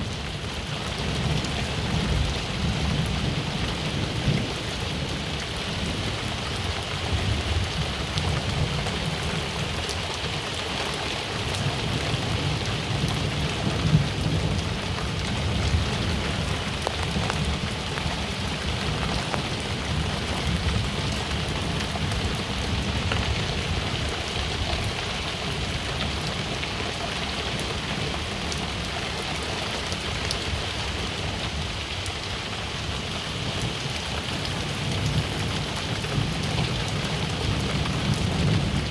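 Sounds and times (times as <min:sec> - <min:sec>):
rain pattering: 0:00.0 - 0:38.9
thunder rumbling: 0:34.5 - 0:38.9.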